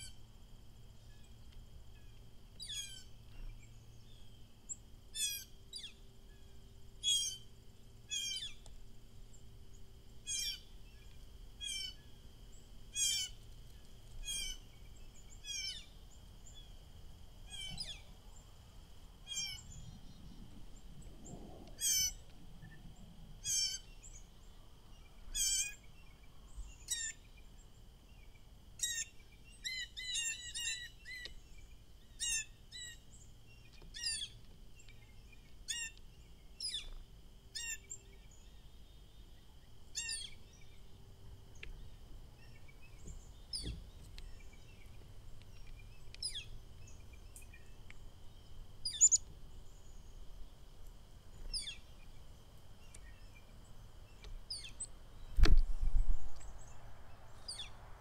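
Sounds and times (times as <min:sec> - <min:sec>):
sharp downward bird chirps: 0:48.8 - 0:49.2.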